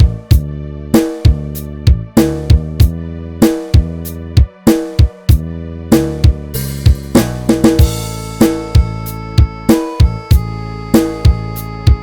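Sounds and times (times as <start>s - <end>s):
drum kit beat: 0.0s - 12.0s
steady bass: 0.0s - 12.0s
sustained chords: 5.4s - 12.0s.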